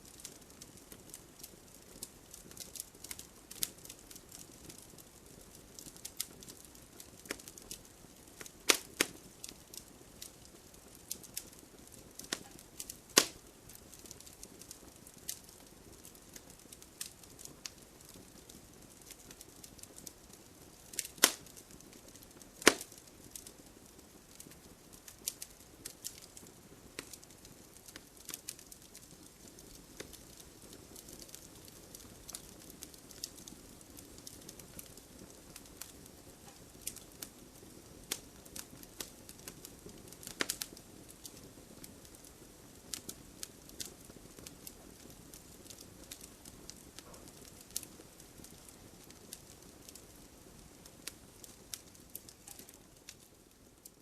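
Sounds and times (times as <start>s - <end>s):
wood fire crackling: 0.0s - 54.0s
loud sharp fire pops: 8.4s - 9.6s, 12.2s - 14.2s, 20.9s - 21.6s, 22.6s - 23.0s.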